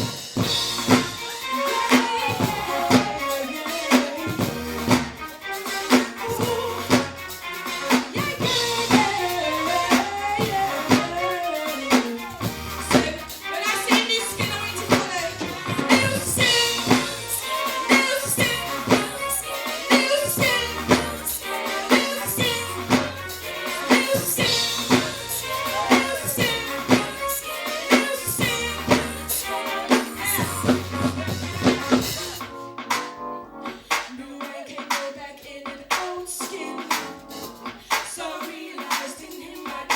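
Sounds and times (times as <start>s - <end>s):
bass: 0.0s - 3.5s, 4.2s - 5.3s, 5.9s - 13.5s, 14.2s - 33.8s
drum kit steady beat: 0.0s - 39.9s
singing: 1.2s - 32.5s, 34.1s - 37.2s, 37.8s - 39.9s.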